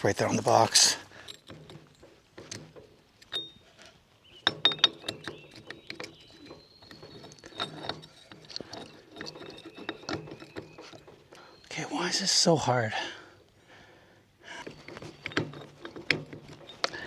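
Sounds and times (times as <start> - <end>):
metal clicks and knocks: 0.4 - 3.6, 4.3 - 11.4, 14.6 - 17.0.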